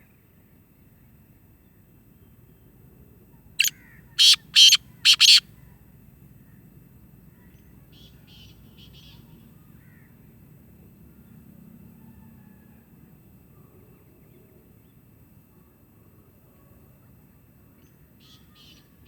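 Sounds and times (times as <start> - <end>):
bird harsh calls: 3.6 - 5.4
faint rapid bird calls: 3.6 - 5.4.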